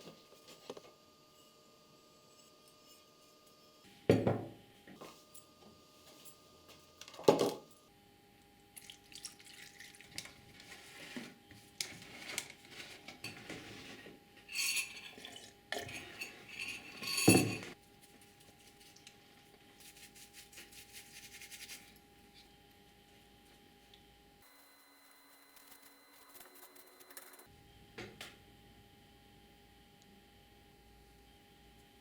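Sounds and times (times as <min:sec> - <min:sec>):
metal tools clinking and rattling: 0:14.5 - 0:17.8.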